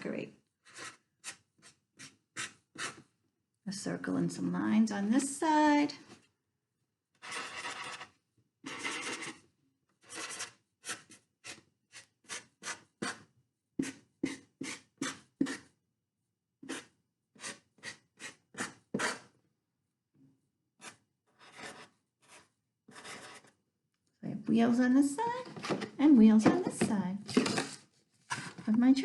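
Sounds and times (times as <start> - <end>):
marker scratching on paper: 0.6 - 3.0, 7.2 - 9.4, 10.0 - 15.7, 16.6 - 19.3, 20.8 - 23.5.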